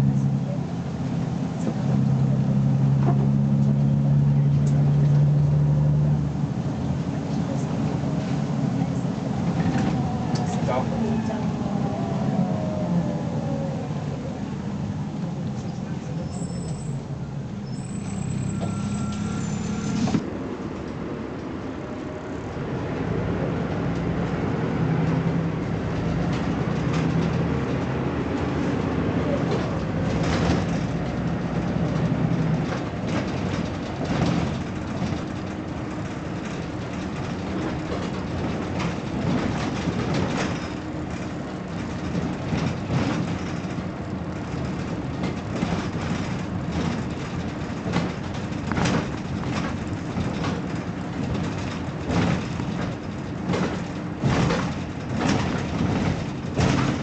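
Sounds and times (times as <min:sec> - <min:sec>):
bus diesel engine pulling: 0:00.0 - 0:57.0
bus rattles and knocks: 0:00.0 - 0:57.0.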